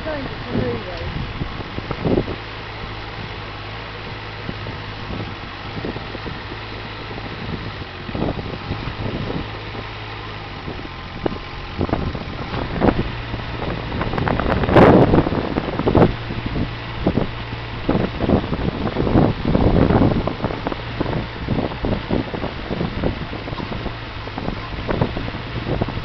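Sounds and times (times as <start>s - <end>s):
digger engine running: 0.0s - 26.0s.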